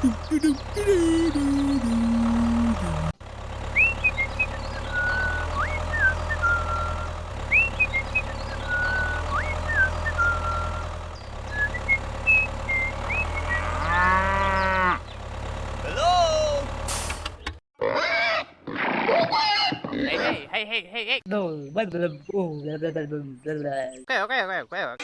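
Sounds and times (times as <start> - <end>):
engine hum: 0.0 - 17.6
rising and falling call: 3.7 - 10.9.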